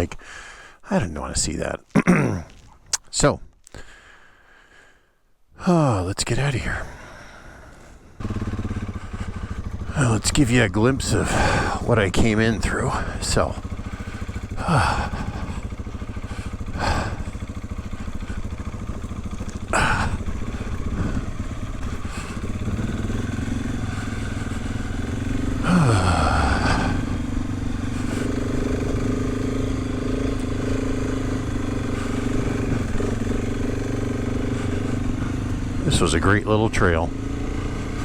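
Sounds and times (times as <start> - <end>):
motorcycle engine running: 6.4 - 38.0.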